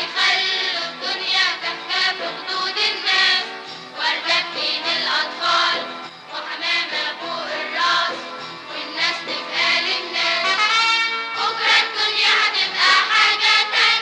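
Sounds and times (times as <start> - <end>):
children's choir singing: 0.0 - 14.0.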